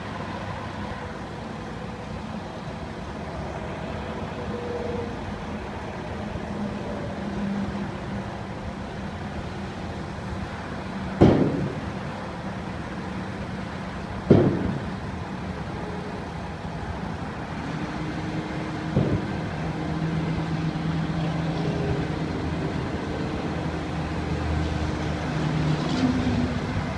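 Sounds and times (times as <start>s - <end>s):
truck diesel engine running: 0.0s - 25.6s
sharp bangs: 11.2s - 12.1s, 14.2s - 15.1s, 18.9s - 19.6s.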